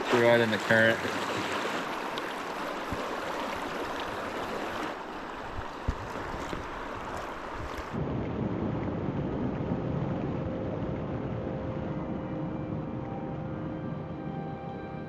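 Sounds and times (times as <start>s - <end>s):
fast river current rushing: 0.0s - 8.0s.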